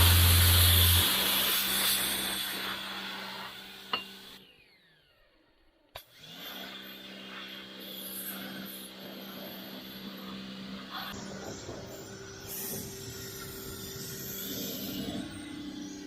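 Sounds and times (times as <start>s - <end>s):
motor humming: 0.0s - 5.3s.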